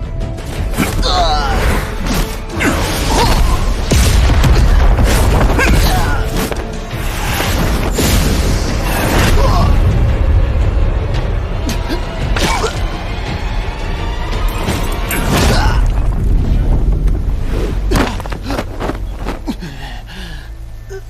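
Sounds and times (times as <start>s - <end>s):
background music: 0.0s - 21.0s
heavy booms and hits: 3.6s - 5.9s.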